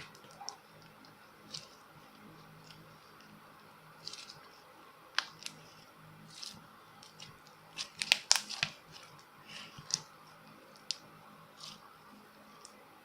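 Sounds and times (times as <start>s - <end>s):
crinkling handling sounds: 5.2s - 11.9s.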